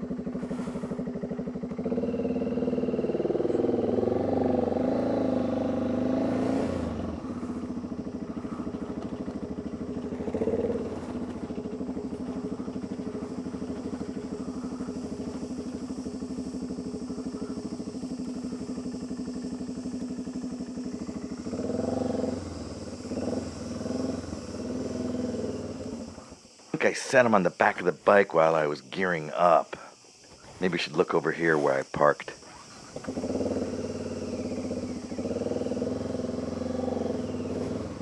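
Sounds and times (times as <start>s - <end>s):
motorcycle engine running: 0.0s - 26.7s, 30.1s - 38.0s.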